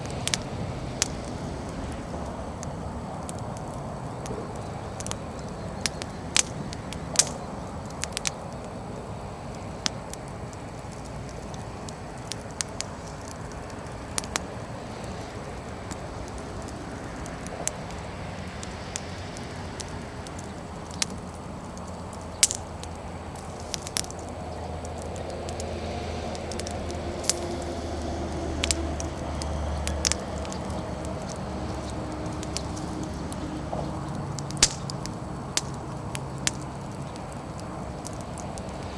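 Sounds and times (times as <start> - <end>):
fire hissing: 0.0 - 38.9
firewood crackling and popping: 0.0 - 38.9
low rumble: 21.3 - 38.9.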